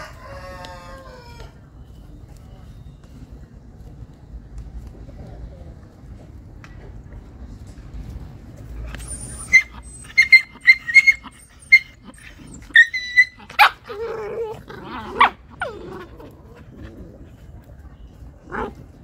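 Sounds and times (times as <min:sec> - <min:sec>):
puppies yipping: 0:08.9 - 0:16.2
puppies yelping and growling: 0:08.9 - 0:17.2.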